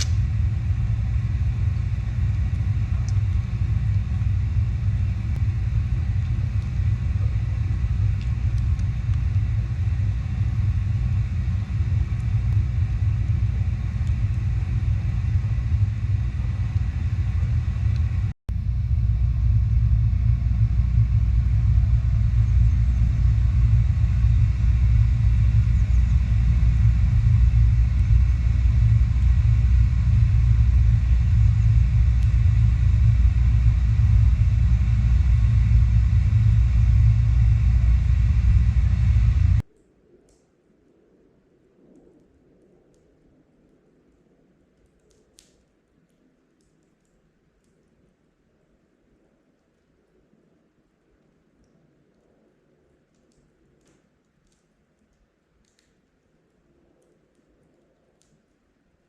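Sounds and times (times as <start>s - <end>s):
steady low rumble: 0.0s - 59.0s.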